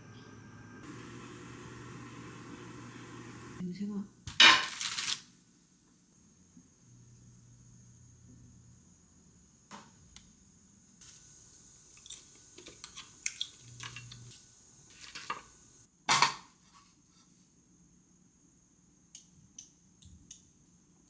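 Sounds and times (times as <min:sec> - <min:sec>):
dishes and utensils clinking: 0:12.0 - 0:15.5.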